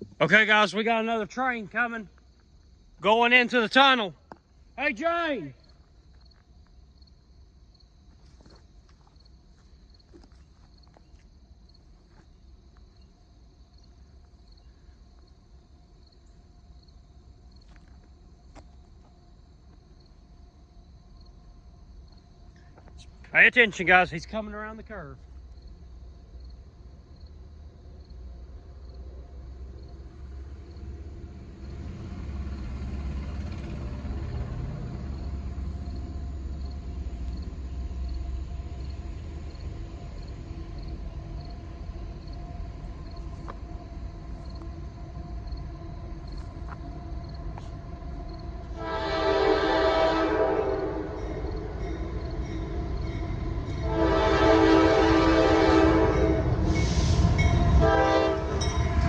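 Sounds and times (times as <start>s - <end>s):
diesel locomotive engines rumbling: 0.0s - 59.0s
multi-tone train air horn: 48.7s - 51.6s, 53.8s - 59.0s.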